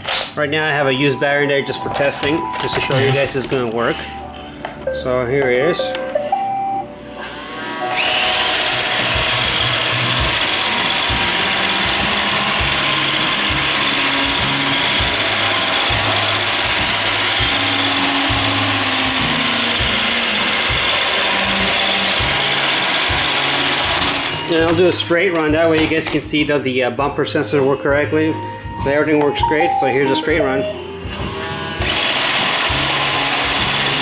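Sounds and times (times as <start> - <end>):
robot vacuum whirring hiss: 7.2 - 12.8.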